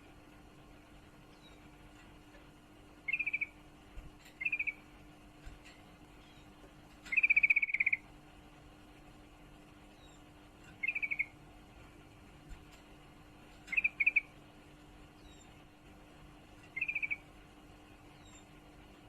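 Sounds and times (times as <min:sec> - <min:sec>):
faint steady hum: 0:00.0 - 0:19.0
bird chattering calls: 0:03.1 - 0:03.6, 0:04.4 - 0:04.8, 0:07.1 - 0:08.1, 0:10.8 - 0:11.4, 0:13.7 - 0:14.4, 0:16.7 - 0:17.3.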